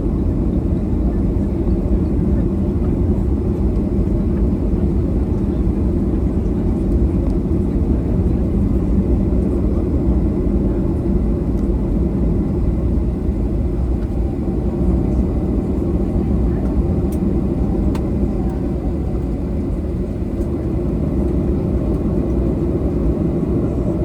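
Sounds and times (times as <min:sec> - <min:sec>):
jet engine cabin rumble: 0:00.0 - 0:24.0.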